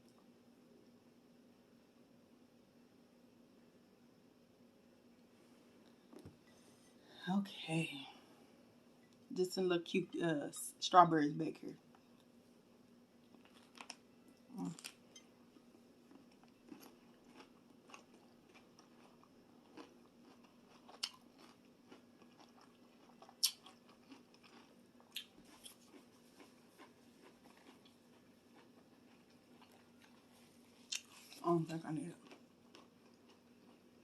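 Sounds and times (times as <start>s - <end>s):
biting and chewing cucumber: 15.6s - 31.5s, 32.2s - 34.0s.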